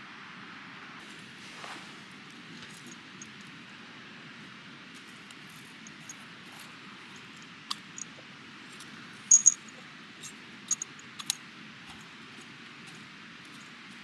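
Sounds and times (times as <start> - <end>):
light metallic clinks: 2.3 - 3.8, 5.0 - 14.0.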